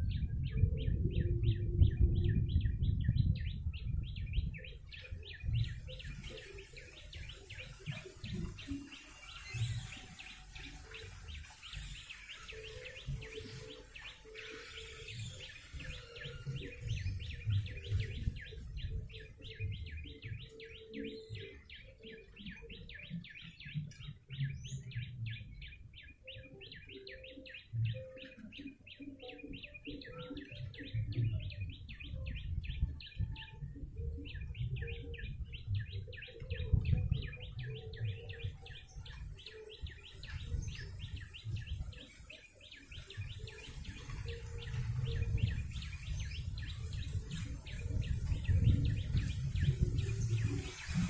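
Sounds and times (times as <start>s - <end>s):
low rumble: 0.0s - 4.8s
bird sharp chirps: 0.0s - 51.0s.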